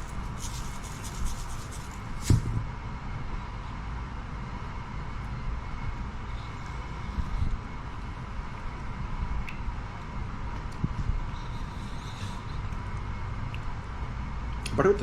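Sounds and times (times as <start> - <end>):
faint hum: 0.0 - 15.0
sharp knock: 2.2 - 2.6.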